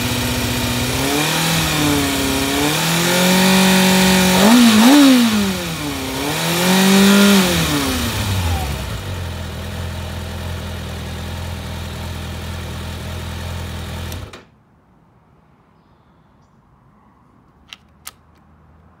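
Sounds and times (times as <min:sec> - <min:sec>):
motorcycle engine idling: 0:00.0 - 0:14.3
sharp clicks: 0:17.6 - 0:18.5.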